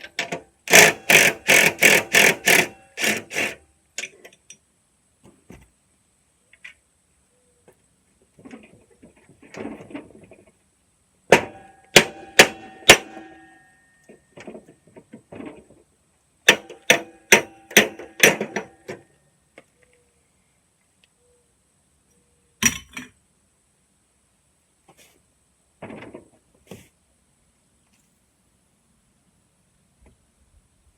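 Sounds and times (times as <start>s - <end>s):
hammer striking metal: 11.3s - 13.8s.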